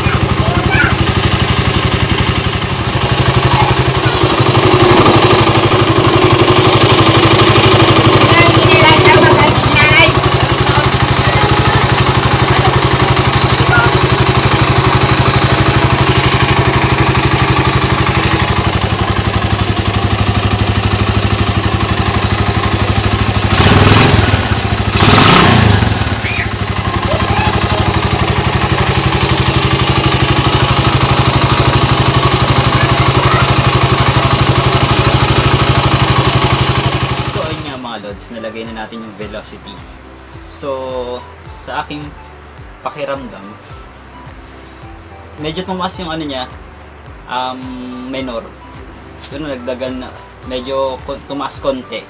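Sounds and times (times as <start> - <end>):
engine revving: 0.0 - 37.8
motorcycle engine idling: 0.0 - 37.9.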